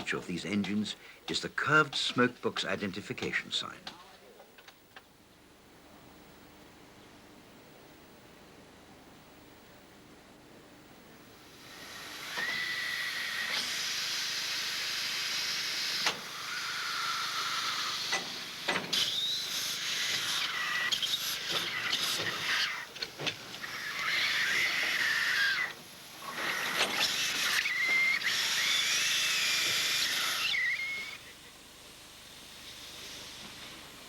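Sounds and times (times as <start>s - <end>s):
steam locomotive hissing: 11.4s - 31.6s, 32.2s - 34.0s.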